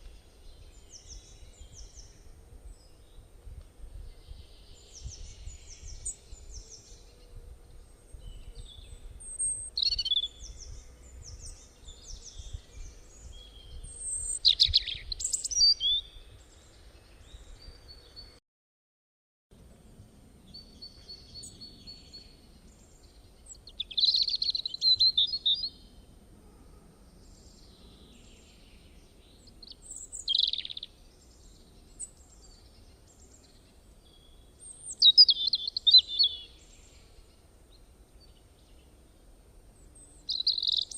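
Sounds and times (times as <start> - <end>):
birds chirping: 20.5 - 26.0, 27.2 - 40.9.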